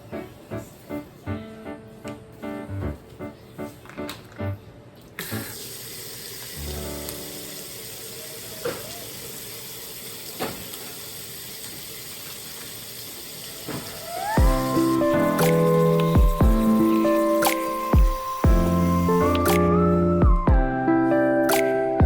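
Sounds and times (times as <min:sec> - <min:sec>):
background music: 0:00.0 - 0:05.5, 0:14.3 - 0:22.0
tap water running into sink: 0:05.2 - 0:19.8.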